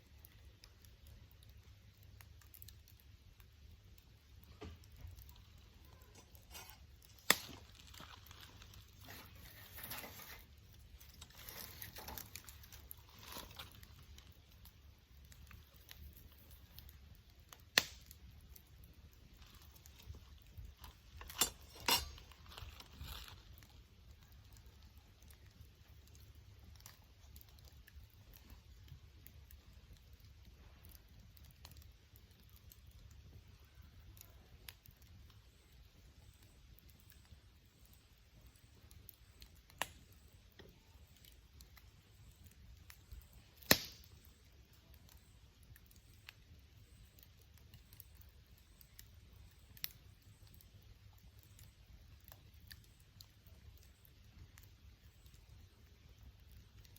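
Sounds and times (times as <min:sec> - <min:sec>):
fire popping: 0:00.0 - 0:56.9
wood fire crackling: 0:00.0 - 0:56.9.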